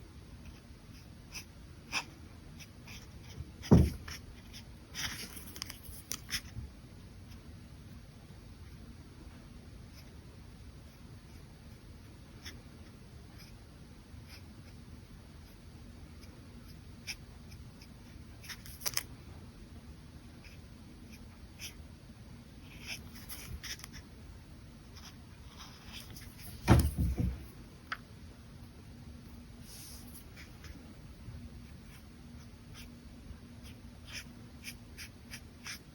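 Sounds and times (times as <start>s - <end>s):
brush pen scratching paper: 22.6s - 24.0s, 24.8s - 26.5s, 33.6s - 35.9s.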